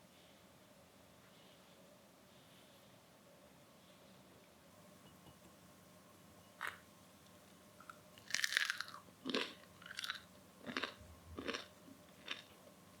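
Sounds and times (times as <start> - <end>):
bread crust crunching: 8.2 - 12.5.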